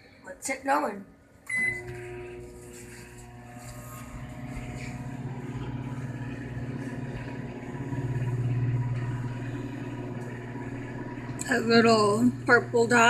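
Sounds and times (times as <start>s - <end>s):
microwave oven humming: 0.2s - 13.0s.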